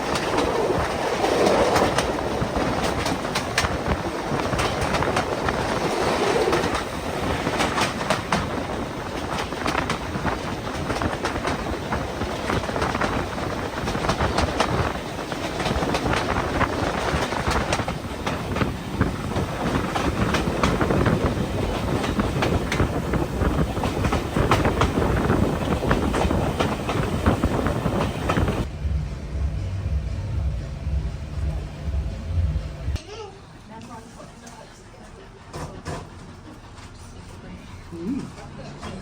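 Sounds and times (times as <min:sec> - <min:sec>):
train wheels clicking over rail joints: 0:00.0 - 0:28.7
train rumble: 0:00.0 - 0:33.0.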